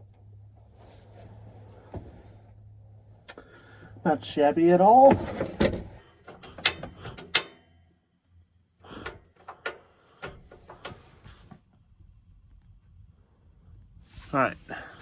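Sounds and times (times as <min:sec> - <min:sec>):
objects clicking and clunking: 0:05.0 - 0:07.8, 0:08.9 - 0:11.3.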